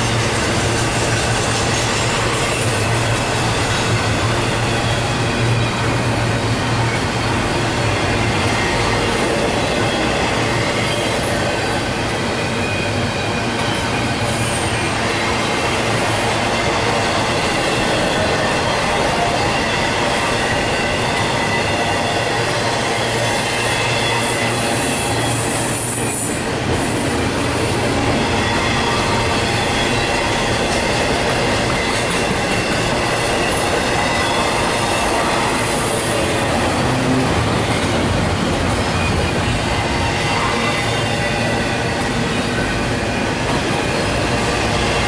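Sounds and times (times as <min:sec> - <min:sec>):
freight train wheels rumbling: 0:00.0 - 0:45.0.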